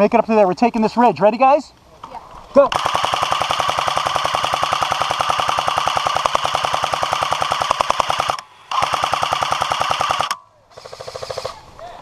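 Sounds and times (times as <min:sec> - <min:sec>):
airsoft gun firing full auto: 0:02.7 - 0:11.6.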